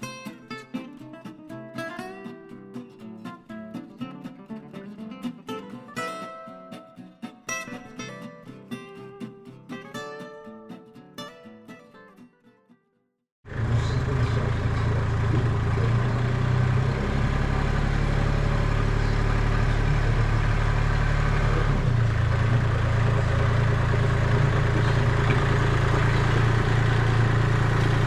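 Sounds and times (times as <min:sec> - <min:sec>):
pressure washer running: 0:13.5 - 0:28.0.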